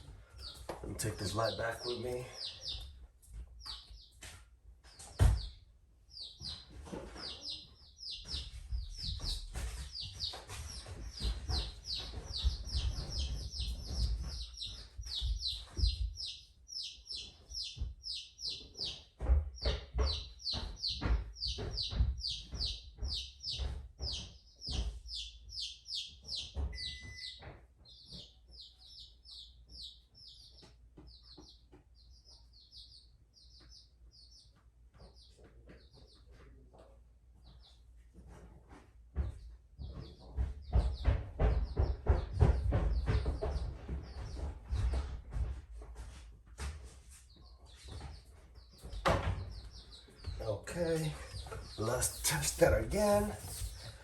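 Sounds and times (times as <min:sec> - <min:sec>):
small bird chirping: 0:00.3 - 0:04.3, 0:04.9 - 0:36.4, 0:47.3 - 0:54.0.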